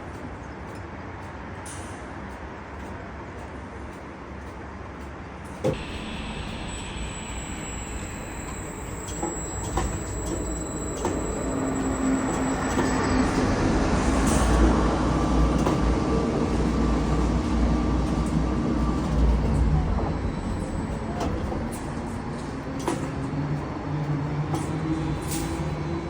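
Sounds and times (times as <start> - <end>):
crane machinery rumble: 5.6 - 26.0
thin high whine: 5.7 - 14.6.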